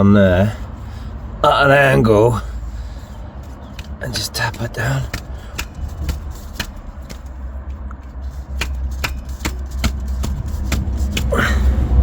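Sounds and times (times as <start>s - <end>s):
steady low rumble: 0.0s - 12.0s
sharp taps on metal grips: 3.7s - 11.3s.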